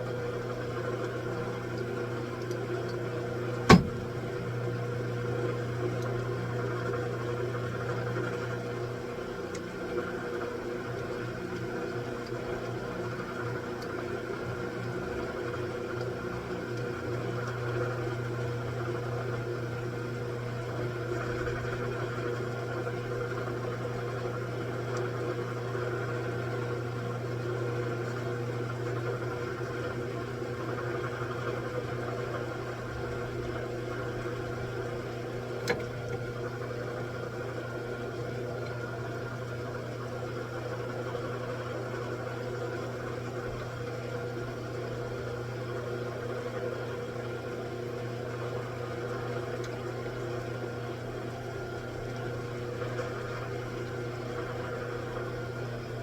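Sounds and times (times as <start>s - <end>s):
machine humming: 0.0s - 9.2s
sharp click: 3.7s - 4.1s.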